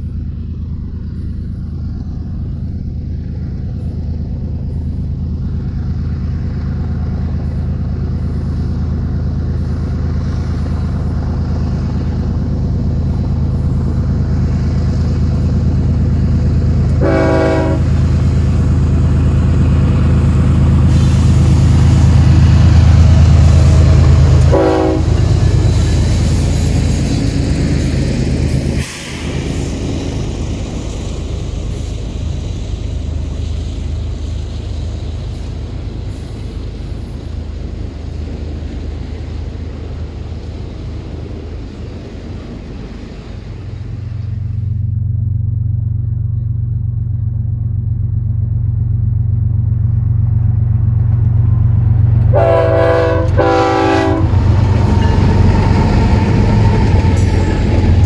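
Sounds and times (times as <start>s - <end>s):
freight train cars rolling: 0.0s - 58.0s
low drone: 0.0s - 58.0s
locomotive air horn blasts: 17.0s - 18.0s, 24.4s - 25.8s, 52.3s - 54.5s.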